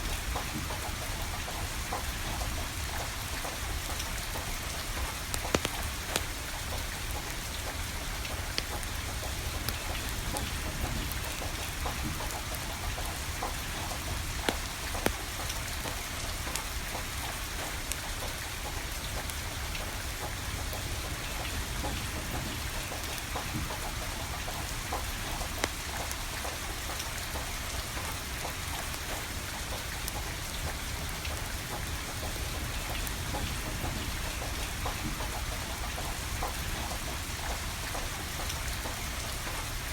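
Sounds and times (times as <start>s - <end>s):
rain pattering: 0.0s - 39.9s
wood fire popping and crackling: 0.1s - 39.9s.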